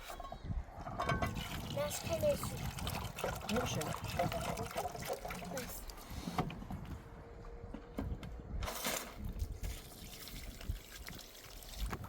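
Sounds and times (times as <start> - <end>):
water trickling and pouring: 0.8 - 6.2, 8.8 - 12.0.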